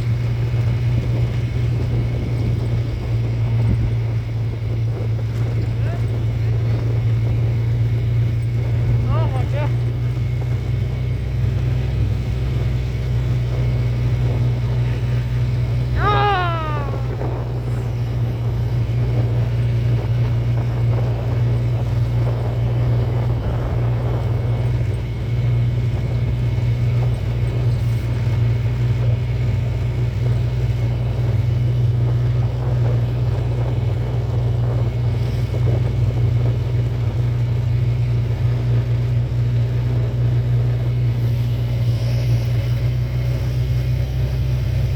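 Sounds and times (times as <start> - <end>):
vehicle engine running: 0.0 - 44.9
short falling cry: 15.9 - 17.7.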